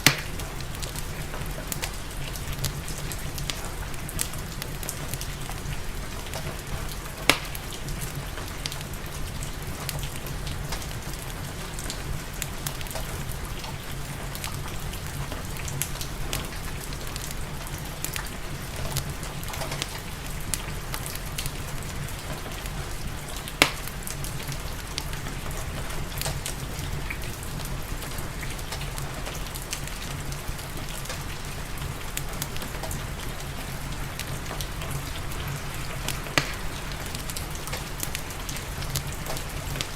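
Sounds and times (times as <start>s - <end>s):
burning wood popping: 0.0s - 8.9s, 23.3s - 25.6s, 26.2s - 39.9s
fireplace crackling: 0.0s - 39.9s
steady rain: 0.0s - 39.9s.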